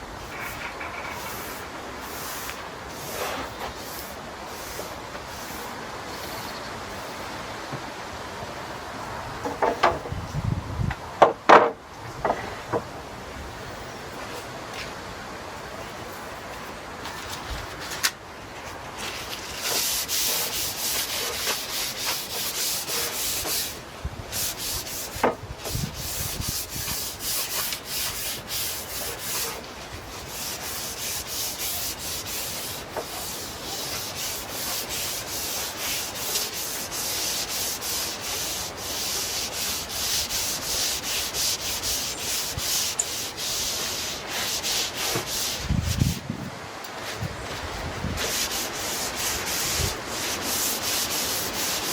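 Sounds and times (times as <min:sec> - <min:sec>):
bristle brush strokes on wood: 0:00.2 - 0:07.3, 0:18.6 - 0:46.2, 0:46.9 - 0:51.9.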